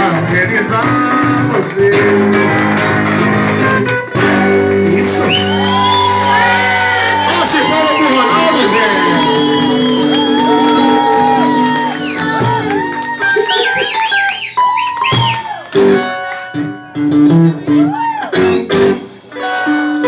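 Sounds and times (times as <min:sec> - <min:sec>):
acoustic guitar playing: 0:00.0 - 0:20.0
people calling out: 0:05.0 - 0:14.2.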